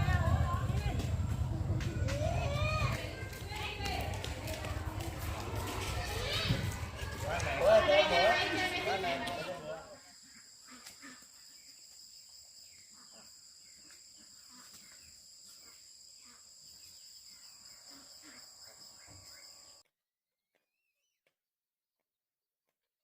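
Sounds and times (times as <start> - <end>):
insects chirring: 5.6 - 19.8.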